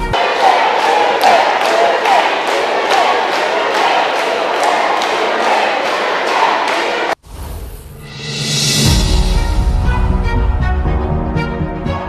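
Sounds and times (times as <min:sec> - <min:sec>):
crowd cheering and chanting: 0:00.0 - 0:07.2
rhythmic claps or drums: 0:00.0 - 0:07.2.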